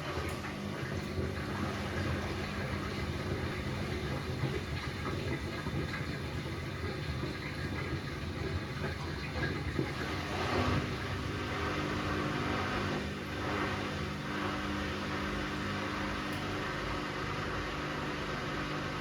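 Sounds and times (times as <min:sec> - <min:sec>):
drain pump rumbling: 0:00.0 - 0:19.0.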